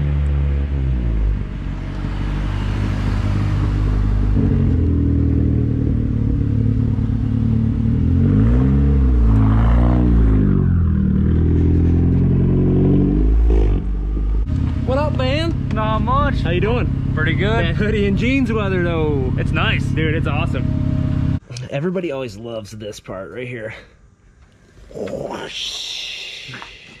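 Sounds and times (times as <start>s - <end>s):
car engine revving: 0.0s - 21.4s.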